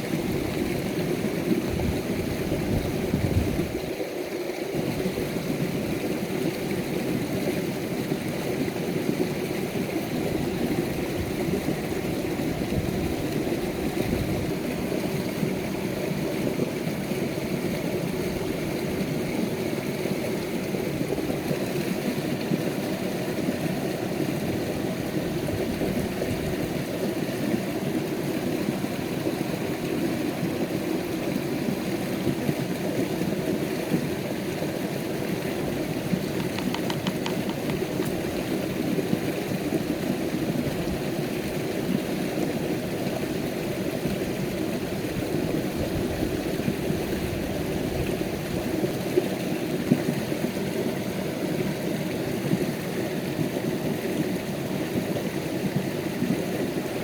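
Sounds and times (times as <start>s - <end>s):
faint ticks: 36.4s - 38.2s.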